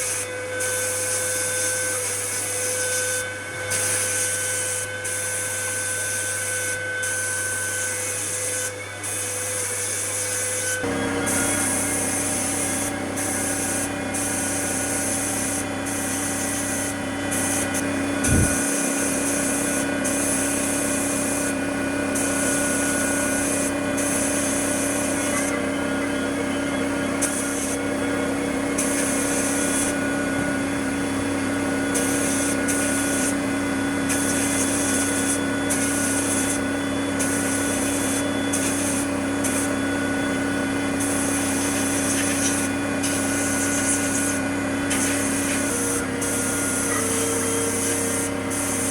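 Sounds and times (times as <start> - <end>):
power tool motor running: 0.0 - 48.9
grinding hiss: 9.6 - 27.9, 28.7 - 30.6, 31.9 - 39.8, 41.0 - 48.9.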